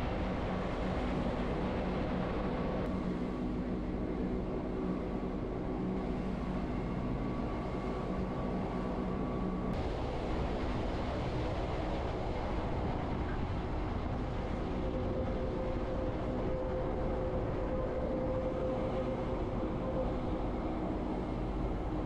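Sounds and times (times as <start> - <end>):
faint steady whine: 0.0 - 22.0
train rumble: 8.3 - 22.0.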